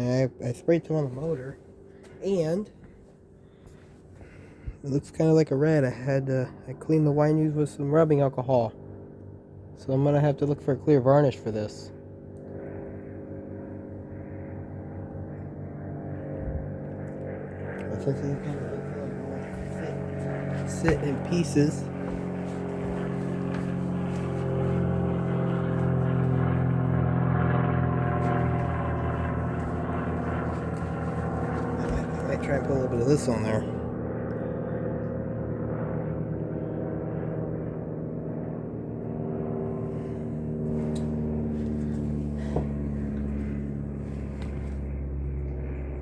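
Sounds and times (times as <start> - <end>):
low machine hum: 0.0 - 46.0
electric motor humming: 17.0 - 33.7, 39.9 - 45.8.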